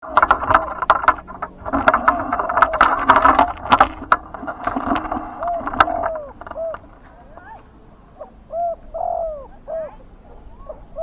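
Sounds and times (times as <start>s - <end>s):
sharp clicks and rattling: 0.0s - 7.7s
doves cooing: 0.0s - 11.0s.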